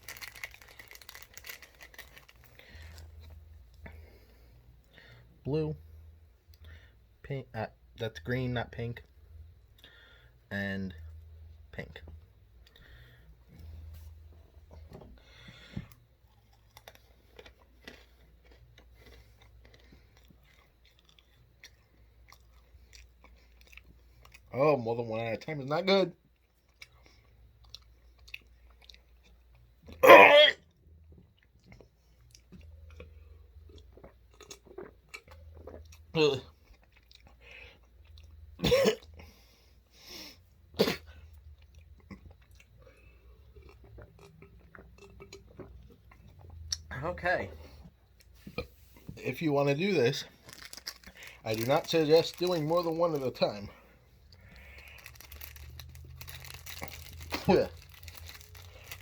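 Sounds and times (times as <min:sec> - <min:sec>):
chewing crunchy food: 0:00.0 - 0:04.2, 0:15.6 - 0:24.5, 0:26.2 - 0:30.0, 0:30.6 - 0:40.4, 0:41.0 - 0:47.0, 0:50.1 - 0:59.0
breath: 0:06.6 - 0:07.0, 0:09.8 - 0:10.4, 0:12.7 - 0:13.9, 0:15.2 - 0:16.0, 0:37.4 - 0:37.8, 0:53.8 - 0:55.2
person coughing hard: 0:30.0 - 0:30.6, 0:38.6 - 0:39.0, 0:40.8 - 0:41.1.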